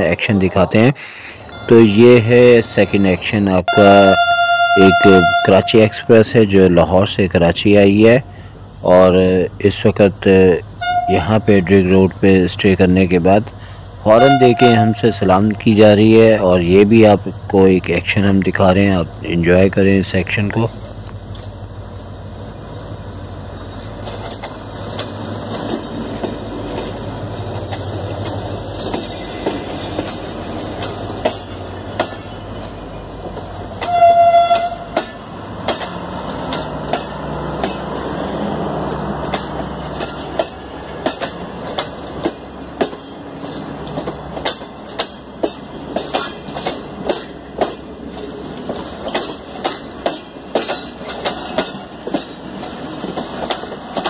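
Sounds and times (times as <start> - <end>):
diesel locomotive engine drone: 0.0 - 54.0
train horn blast: 3.7 - 5.9, 10.8 - 11.2, 14.1 - 15.1, 33.8 - 35.0
train wheels clicking over rail joints: 7.0 - 54.0.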